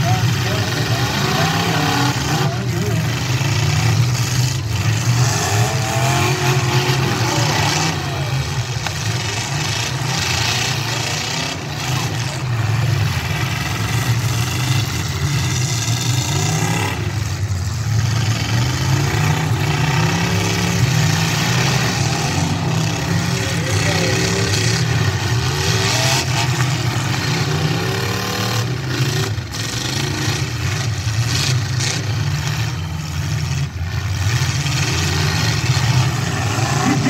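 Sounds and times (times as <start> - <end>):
car engines revving: 0.0 - 37.0.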